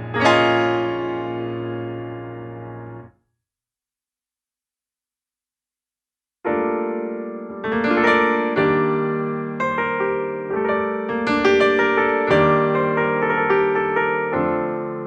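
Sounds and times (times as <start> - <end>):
piano chords ringing: 0.0 - 3.1, 6.5 - 15.0.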